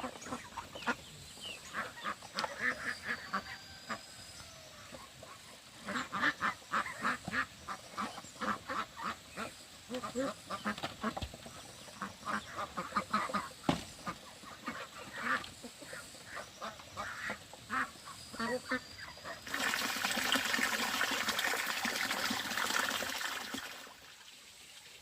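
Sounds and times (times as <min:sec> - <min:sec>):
ducks quacking: 0:00.0 - 0:04.0, 0:04.9 - 0:19.7.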